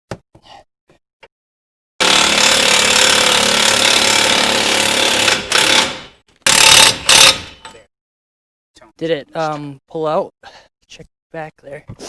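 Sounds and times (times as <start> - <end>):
impact wrench hammering: 2.0 - 7.7.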